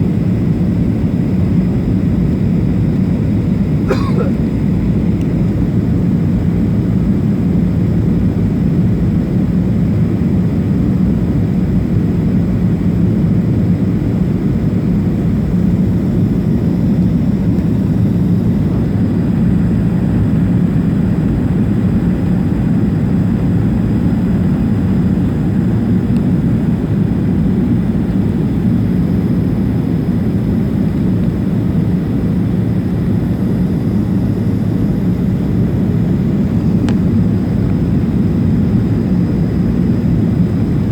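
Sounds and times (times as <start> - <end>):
jet engines rumbling: 13.9 - 40.9.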